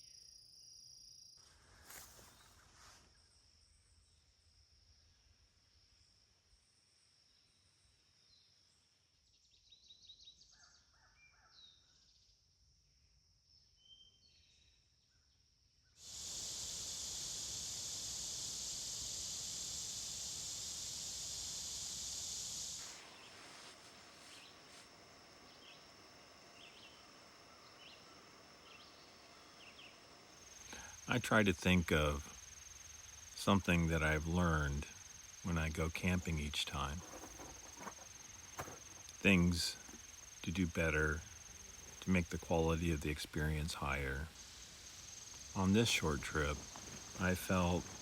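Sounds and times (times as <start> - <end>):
insect drone: 0.0 - 10.4, 11.5 - 48.0
loud even hiss: 16.0 - 48.0.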